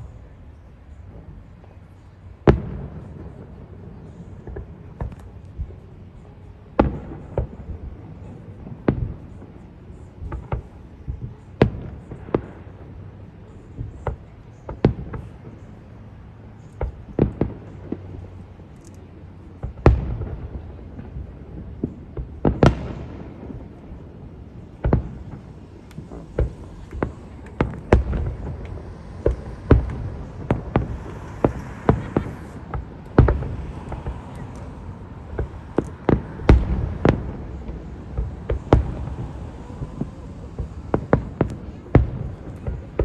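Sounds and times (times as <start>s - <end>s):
steady low rumble: 0.0s - 43.0s
fireworks booming: 2.4s - 5.9s, 6.8s - 15.6s, 16.6s - 18.5s, 19.6s - 43.0s.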